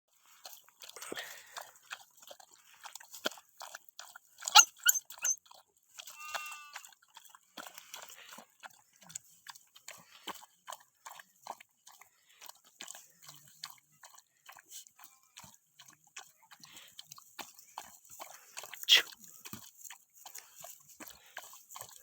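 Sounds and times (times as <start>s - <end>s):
puppies chewing and crunching: 0.1s - 22.0s
puppy whining: 4.5s - 5.4s.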